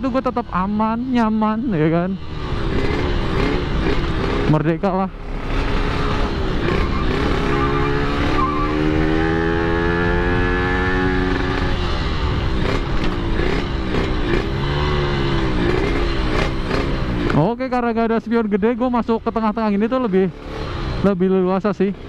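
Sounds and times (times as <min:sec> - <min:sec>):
two-stroke motorcycle engine: 0:00.0 - 0:22.0.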